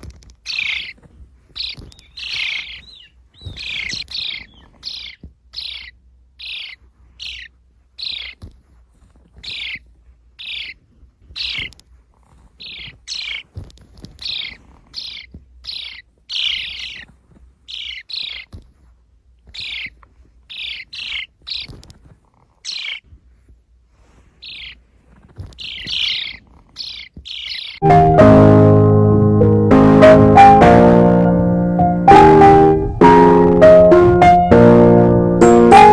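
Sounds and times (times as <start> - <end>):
sparrow chirping: 0.4 - 1.0, 1.6 - 8.4, 9.4 - 9.8, 10.4 - 10.8, 11.4 - 11.8, 12.6 - 13.5, 14.2 - 17.1, 17.7 - 18.6, 19.5 - 21.8, 22.7 - 23.0, 24.4 - 24.8, 25.5 - 28.6, 29.8 - 35.9.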